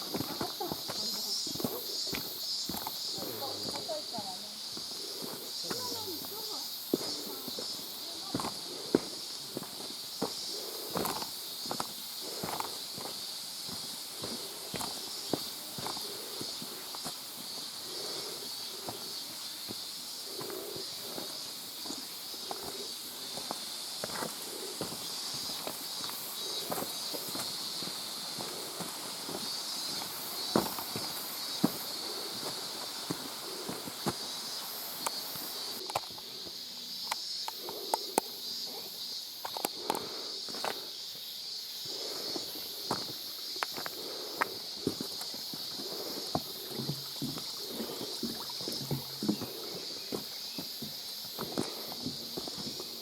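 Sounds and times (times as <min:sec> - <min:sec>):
footsteps on rocky trail: 0:00.0 - 0:36.6, 0:39.4 - 0:41.0, 0:41.8 - 0:53.0
high-pitched hiss: 0:00.0 - 0:53.0.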